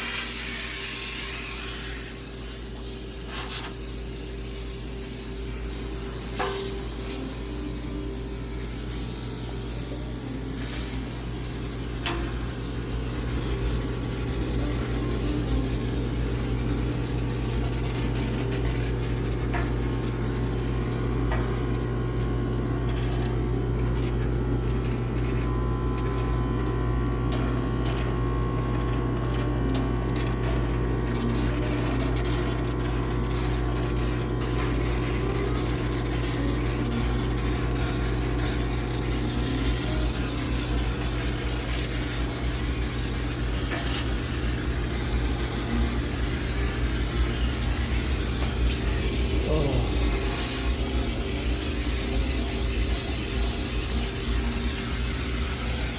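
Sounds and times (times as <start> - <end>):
steam hissing: 0.0 - 19.4, 34.5 - 55.9
steam cleaner hum: 0.0 - 55.9.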